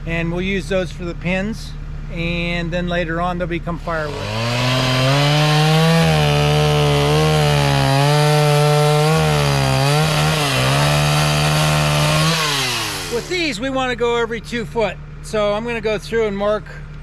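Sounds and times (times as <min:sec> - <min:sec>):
chainsaw revving: 0:03.9 - 0:13.6.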